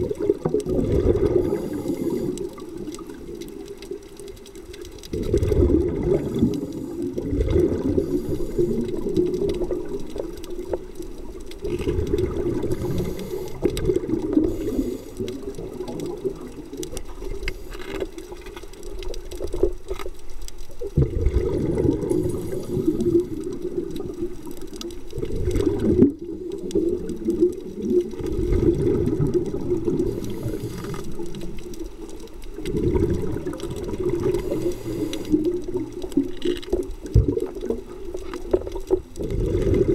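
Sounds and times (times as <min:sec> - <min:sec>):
bubbling exhaled air: 0:00.0 - 0:19.8, 0:20.8 - 0:39.9
diver breathing through regulator: 0:01.2 - 0:02.8, 0:06.1 - 0:09.2, 0:12.6 - 0:15.6, 0:22.0 - 0:23.6, 0:29.9 - 0:31.4, 0:34.2 - 0:35.7.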